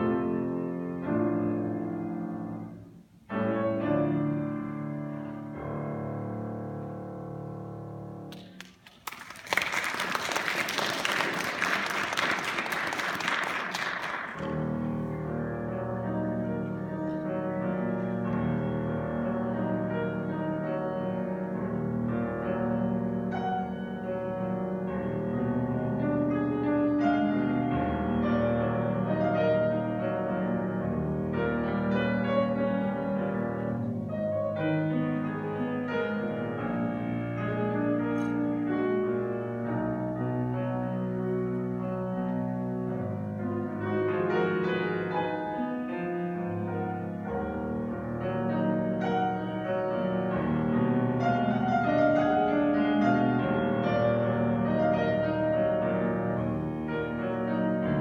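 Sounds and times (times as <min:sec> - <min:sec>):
classical solo piano: 0:00.0 - 0:09.1, 0:10.4 - 0:58.0
audience applauding: 0:08.3 - 0:14.7.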